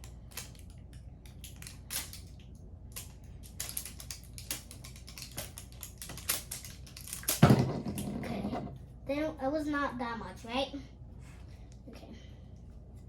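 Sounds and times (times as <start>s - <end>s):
plastic toy pieces clicking: 0.0s - 7.4s.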